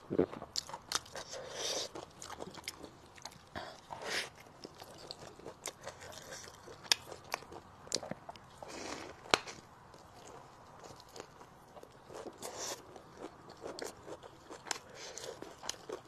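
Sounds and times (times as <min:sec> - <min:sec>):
chewing and biting food: 0:00.3 - 0:16.0.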